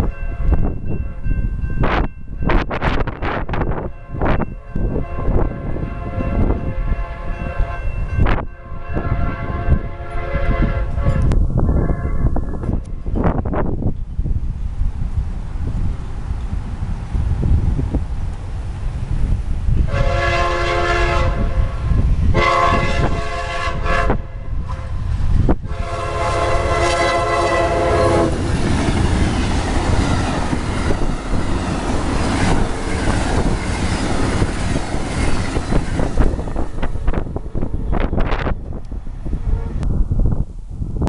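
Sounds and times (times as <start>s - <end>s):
train horn blasts: 0.0s - 2.0s, 3.8s - 12.9s, 19.8s - 31.1s, 39.2s - 40.0s
train passing with rumble: 0.0s - 41.0s
wheels clacking over rail joints: 26.8s - 37.1s.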